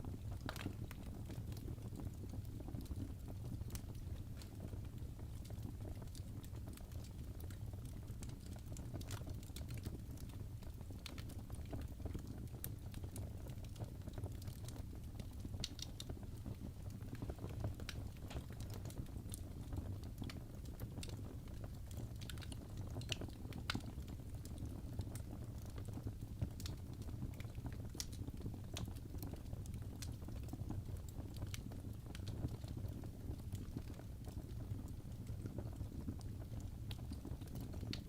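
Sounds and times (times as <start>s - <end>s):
logs crackling in fireplace: 0.0s - 38.0s
low rumble of flames: 0.0s - 38.0s.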